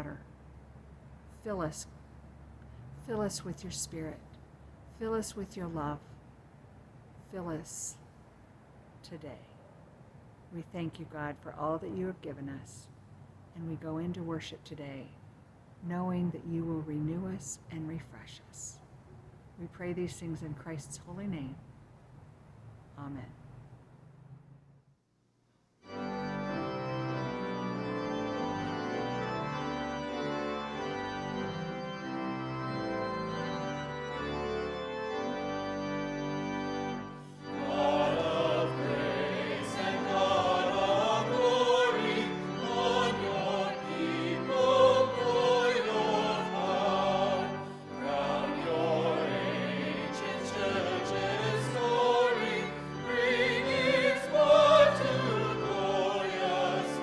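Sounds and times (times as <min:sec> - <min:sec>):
organ playing held chords: 0:25.8 - 0:57.0
singing with vibrato: 0:37.5 - 0:57.0.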